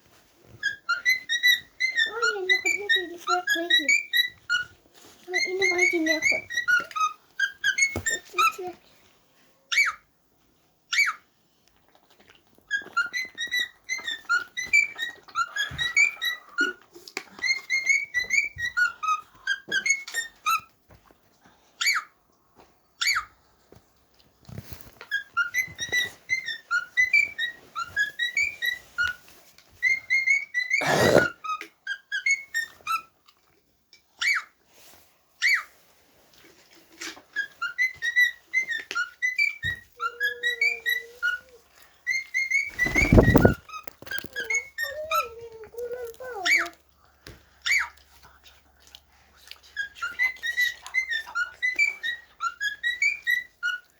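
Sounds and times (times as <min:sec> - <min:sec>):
cockatiel whistling: 0:42.1 - 0:43.6.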